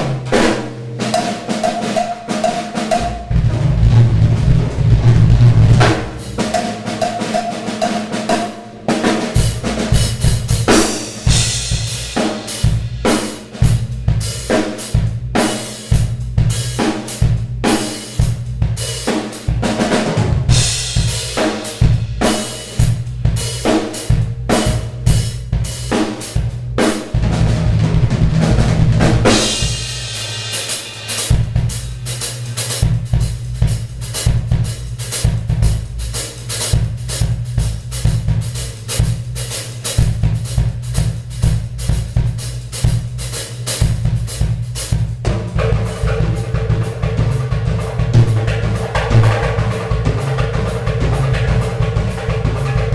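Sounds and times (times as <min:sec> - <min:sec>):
cymbal crashes: 0:00.0 - 0:15.9, 0:29.2 - 0:32.9
drum kit solo: 0:00.0 - 0:52.9.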